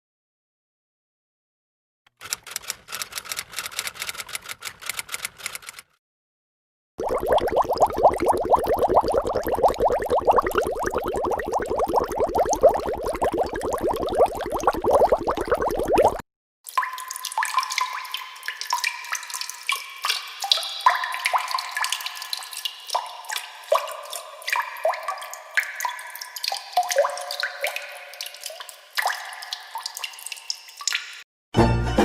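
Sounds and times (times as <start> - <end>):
water drops plinking: 7.0 - 31.2.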